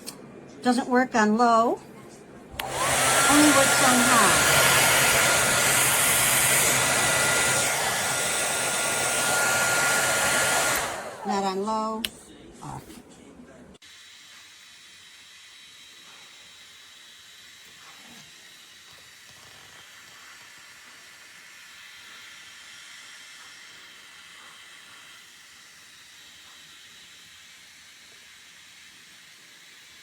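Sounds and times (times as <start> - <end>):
hair dryer blowing: 2.5 - 11.9, 13.9 - 30.0
person speaking: 2.6 - 8.2, 10.8 - 13.2.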